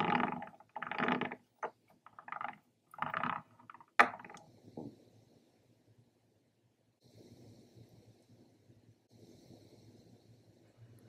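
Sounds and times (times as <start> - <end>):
plastic toy clicking and clattering: 0.0 - 4.4.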